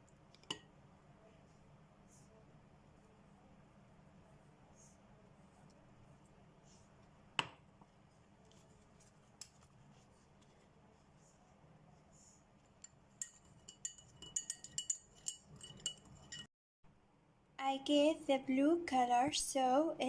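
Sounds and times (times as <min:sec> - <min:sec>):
glass clinking taps: 0:12.8 - 0:16.5.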